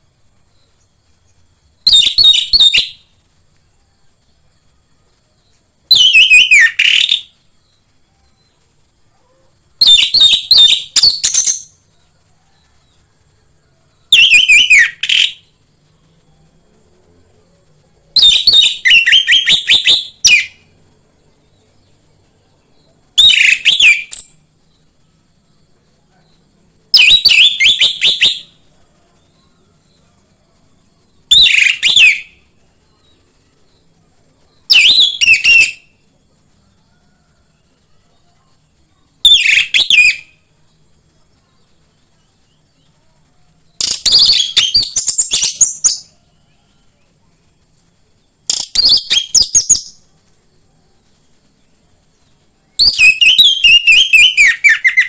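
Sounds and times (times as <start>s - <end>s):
thrush singing whistled phrases: 1.8s - 3.2s, 5.9s - 8.4s, 9.8s - 11.8s, 14.1s - 15.6s, 18.1s - 20.7s, 23.2s - 24.4s, 26.9s - 28.7s, 31.2s - 32.6s, 34.6s - 36.0s, 39.2s - 40.5s, 43.8s - 46.1s, 48.4s - 50.0s, 52.7s - 55.0s.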